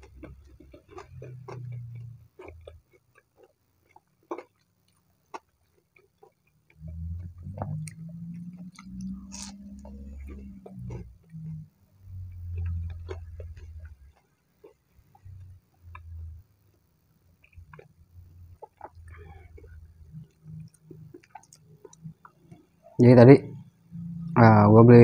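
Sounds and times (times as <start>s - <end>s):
crunchy chewing clicks: 0.0s - 23.0s
dull mouth sounds: 6.2s - 16.4s, 17.4s - 23.0s.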